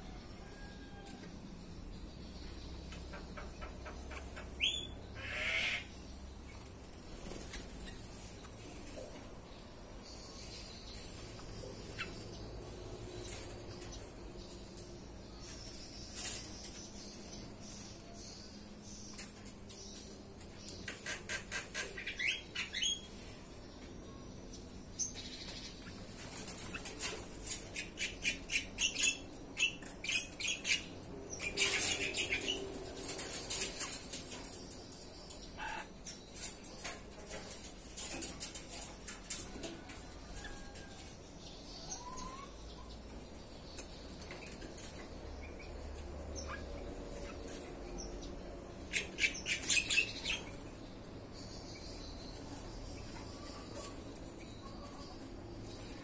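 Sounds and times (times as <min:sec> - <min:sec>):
small birds chirping: 0:00.4 - 0:56.0
birds squawking: 0:04.6 - 0:05.9, 0:35.6 - 0:36.0
wings fluttering: 0:06.5 - 0:08.4.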